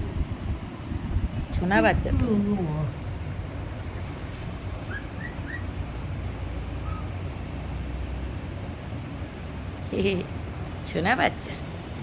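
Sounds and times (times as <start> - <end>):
parrot chirping: 4.8 - 5.8, 6.8 - 7.1.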